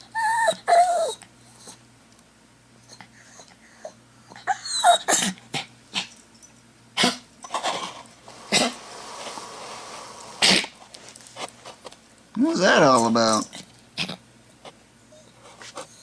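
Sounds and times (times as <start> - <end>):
dog whining: 0.0 - 1.8, 2.8 - 5.7, 15.0 - 16.0
dog yipping: 0.0 - 1.8, 3.3 - 5.4.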